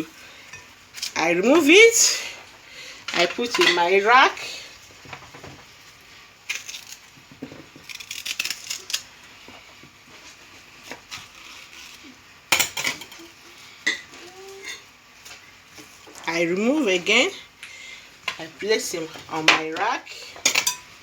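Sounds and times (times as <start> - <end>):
knife clinking on metal rack: 20.5 - 20.9.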